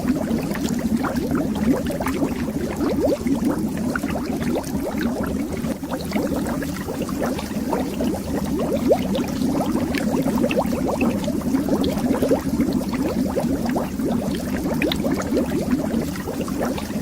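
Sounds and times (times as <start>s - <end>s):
underwater bubbles rising: 0.0s - 17.0s.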